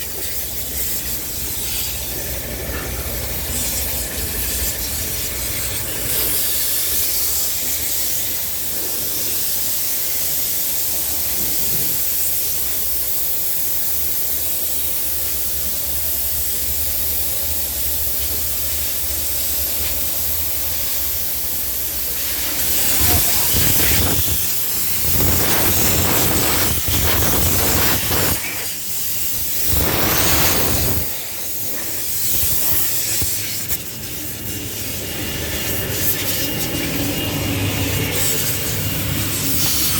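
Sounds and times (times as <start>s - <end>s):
water jets spraying onto car: 0.0s - 39.9s.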